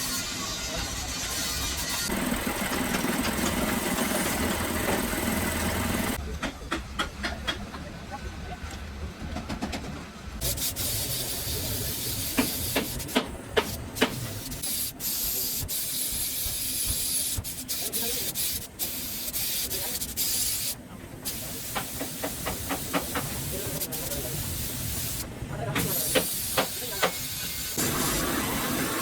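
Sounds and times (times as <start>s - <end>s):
workshop tools knocking: 6.3s - 7.8s, 25.8s - 27.2s
compressed air hissing: 10.4s - 29.0s.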